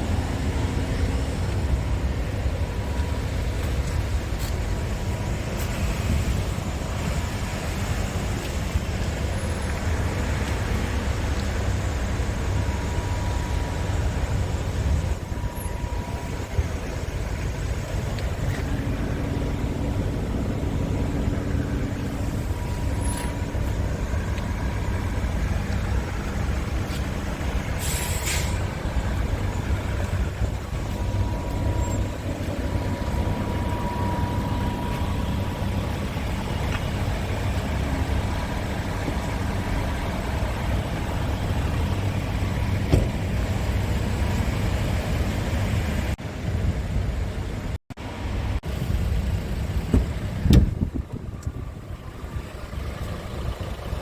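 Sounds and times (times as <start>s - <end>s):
truck diesel engine rumbling: 0.0s - 54.0s
short air hiss: 27.8s - 28.6s.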